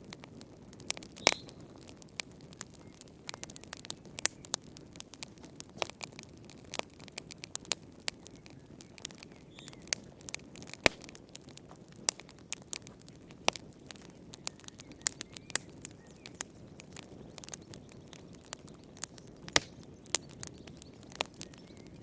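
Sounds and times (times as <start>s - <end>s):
fireplace fire crackling: 0.0s - 22.0s.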